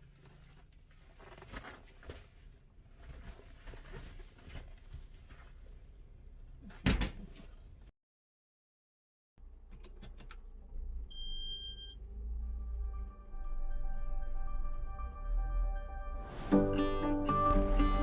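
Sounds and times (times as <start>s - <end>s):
rustling: 0.0s - 5.9s
low hum: 10.7s - 18.0s.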